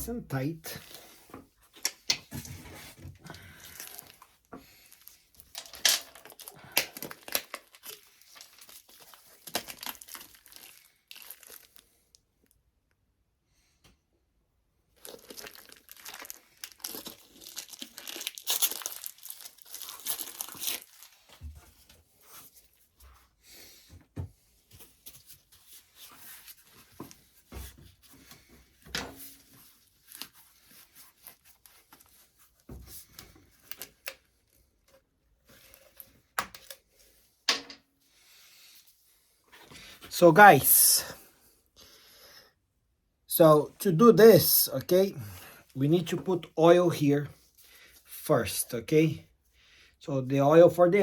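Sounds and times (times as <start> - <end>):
wrapping crinkling and tearing: 3.3 - 12.2, 14.9 - 21.5, 29.2 - 34.7.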